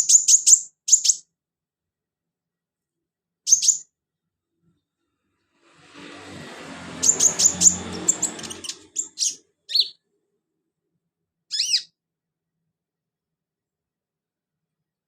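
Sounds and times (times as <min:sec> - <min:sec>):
bird chirps and trills: 0:00.0 - 0:01.3, 0:03.5 - 0:03.9, 0:06.3 - 0:10.0, 0:11.5 - 0:12.0.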